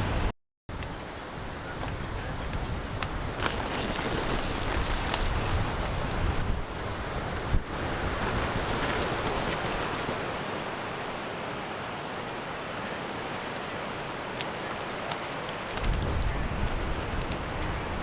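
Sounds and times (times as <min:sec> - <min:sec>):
wind buffeting microphone: 0:00.0 - 0:11.3, 0:15.7 - 0:18.0.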